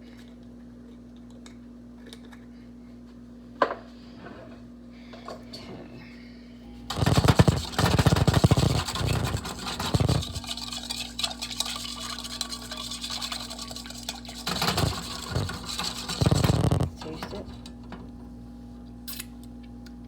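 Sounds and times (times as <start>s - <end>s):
wire whisk rattling in bowl: 6.9s - 17.7s.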